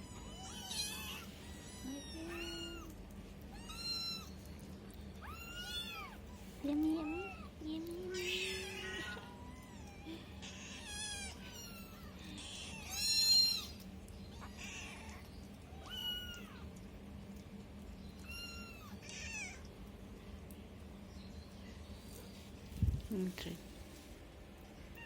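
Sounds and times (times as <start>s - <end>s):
kittens mewing: 8.1s - 16.7s.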